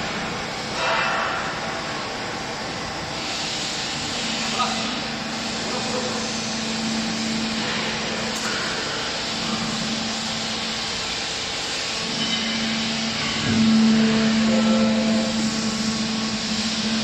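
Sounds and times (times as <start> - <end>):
hydraulic baler motor humming: 4.5 - 17.0.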